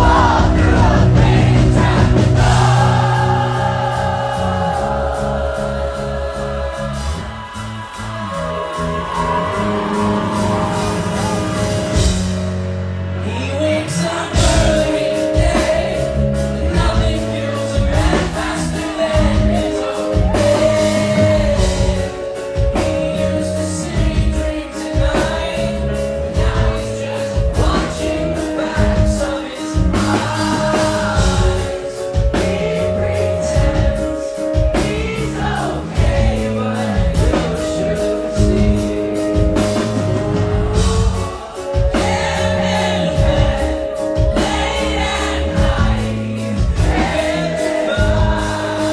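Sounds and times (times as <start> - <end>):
pulsing low beat: 0.0 - 12.8
piano: 0.0 - 48.9
man singing: 13.2 - 48.9.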